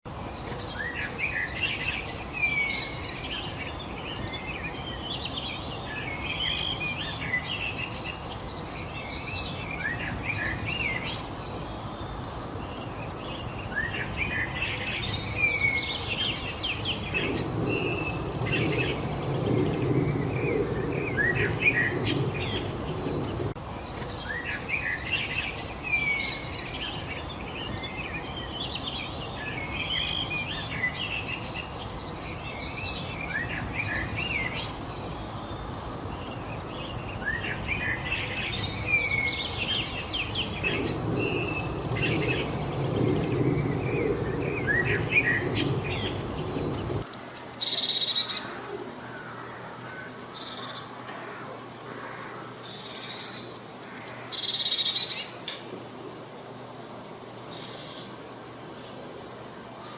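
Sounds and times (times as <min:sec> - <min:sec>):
songbirds chirping and trilling: 0:00.1 - 0:59.9
steady background hiss: 0:00.1 - 0:59.9
low rumble: 0:17.0 - 0:23.6, 0:39.9 - 0:47.0.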